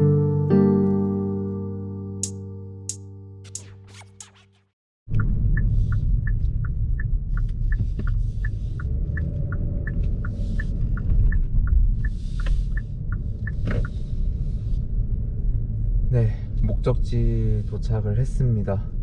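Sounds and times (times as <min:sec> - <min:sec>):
turn signal ticking: 0:05.1 - 0:15.2
car cabin road rumble: 0:05.1 - 0:19.0.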